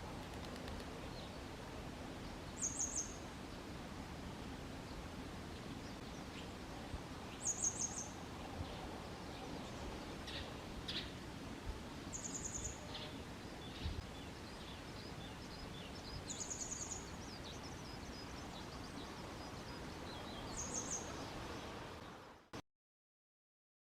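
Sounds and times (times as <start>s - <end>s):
steady background hiss: 0.0s - 22.6s
faint bird chirps: 2.2s - 3.2s, 5.6s - 11.2s, 12.1s - 22.5s.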